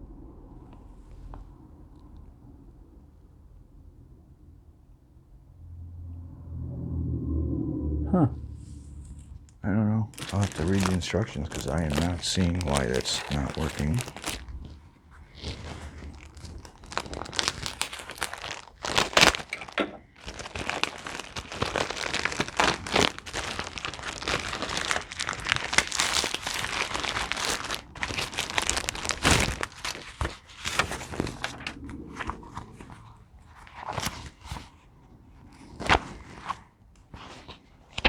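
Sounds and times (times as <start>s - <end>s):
paper and packaging crinkling: 9.3s - 34.8s, 35.5s - 38.0s.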